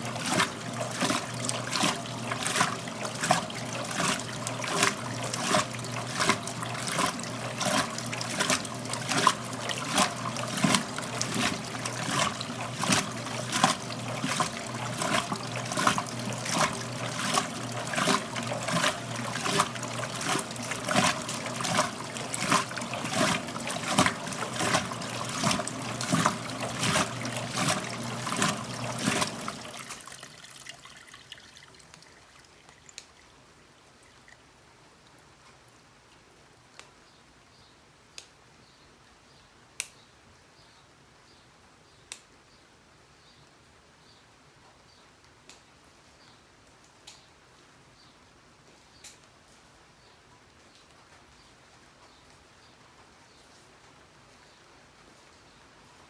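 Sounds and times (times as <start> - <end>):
washer motor hum: 0.0 - 32.8
water splashing and sloshing: 0.0 - 34.4.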